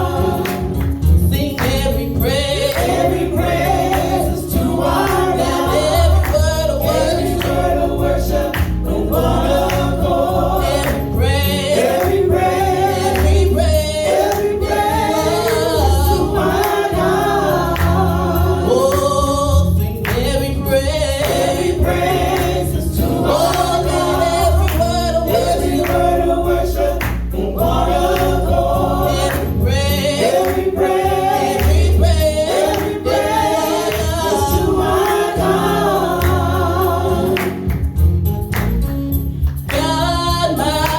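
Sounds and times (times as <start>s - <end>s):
band accompaniment: 0.0s - 40.9s
gospel choir singing: 0.0s - 40.9s.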